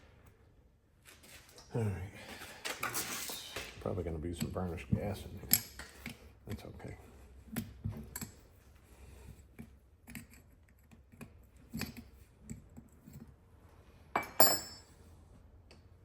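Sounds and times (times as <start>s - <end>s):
metal parts clattering: 2.6s - 3.7s.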